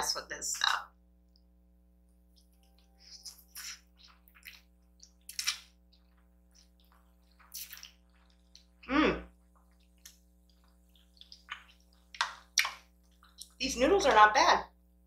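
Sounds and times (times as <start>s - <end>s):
slurping and mouth smacks: 2.4s - 13.6s.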